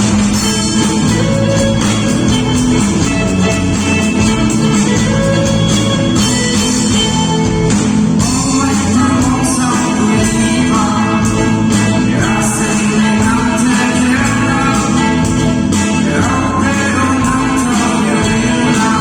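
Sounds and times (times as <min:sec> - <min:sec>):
gospel band with guitar: 0:00.0 - 0:19.0
people singing: 0:08.2 - 0:19.0.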